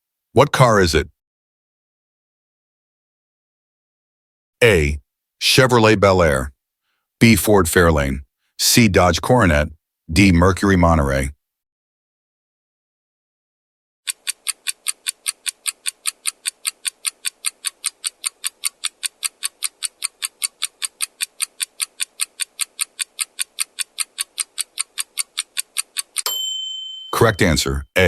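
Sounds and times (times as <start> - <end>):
clock-like timer ticking: 14.1 - 26.3.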